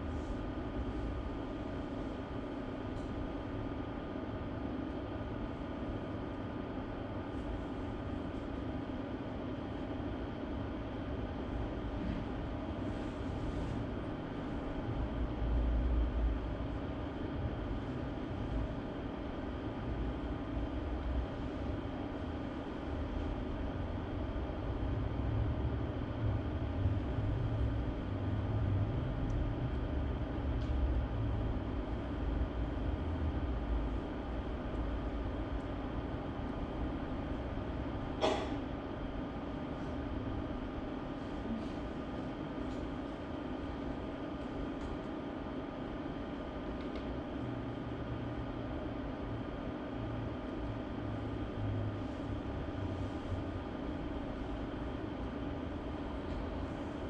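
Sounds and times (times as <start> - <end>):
room background rumble and hum: 0.0 - 57.0.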